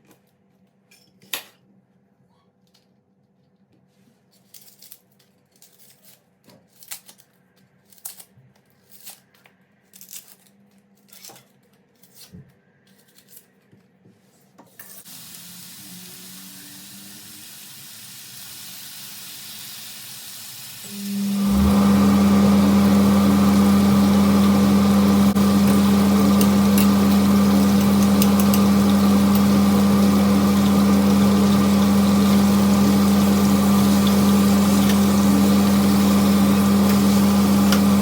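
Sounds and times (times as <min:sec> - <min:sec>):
tap water running: 0:15.1 - 0:38.0.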